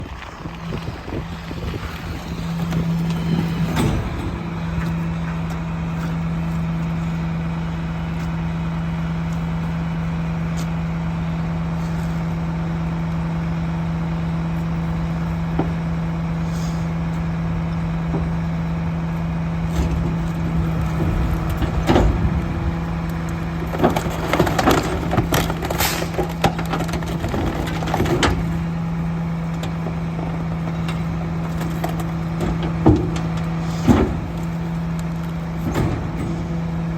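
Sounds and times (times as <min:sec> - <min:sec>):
garbage truck engine droning: 0:00.0 - 0:36.9
clanking and banging: 0:01.6 - 0:06.2, 0:19.6 - 0:36.9.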